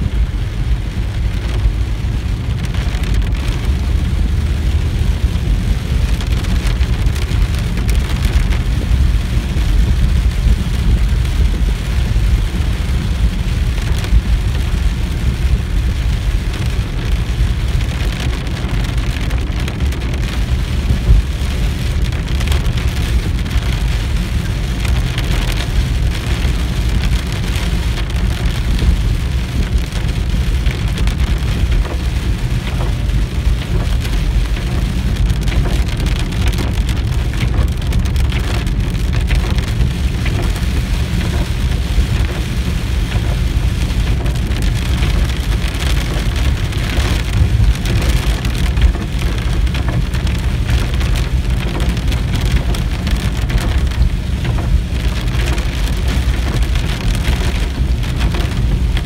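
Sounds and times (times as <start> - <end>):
heavy rain on car roof: 0.0 - 59.0
low car rumble: 0.0 - 59.0.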